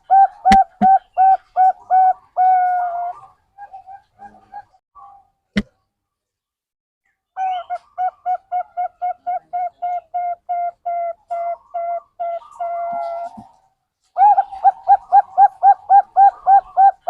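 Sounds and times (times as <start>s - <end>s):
dove cooing: 0.0s - 4.8s, 7.4s - 13.6s, 14.2s - 17.0s.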